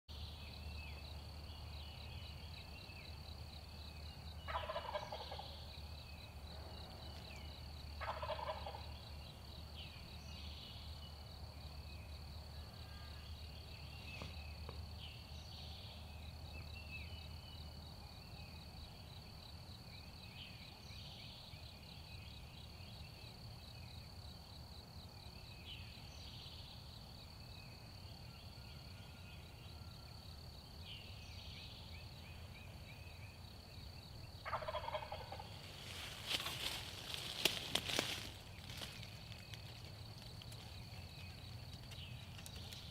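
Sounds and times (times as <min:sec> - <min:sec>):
songbird chirps: 0:00.1 - 0:42.9
turkey gobbling: 0:04.5 - 0:05.5, 0:08.0 - 0:08.8, 0:34.4 - 0:35.5.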